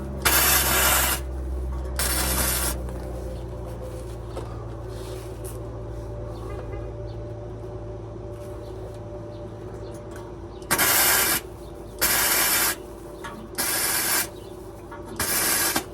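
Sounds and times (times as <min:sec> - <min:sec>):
short loud hiss bursts: 0:10.7 - 0:11.4, 0:12.0 - 0:12.8, 0:13.6 - 0:14.3.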